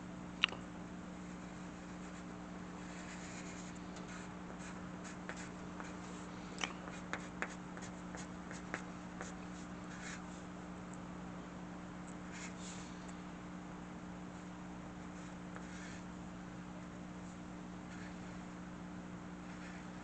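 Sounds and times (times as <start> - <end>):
low electrical hum: 0.0 - 20.0
drawing tool scratching paper: 1.2 - 6.3, 6.9 - 10.3.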